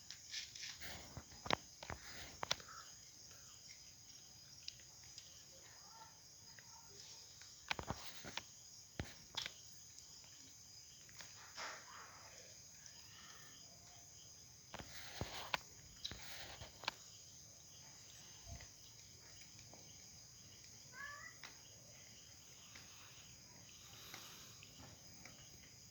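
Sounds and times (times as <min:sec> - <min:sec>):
insects trilling: 0:00.0 - 0:25.9.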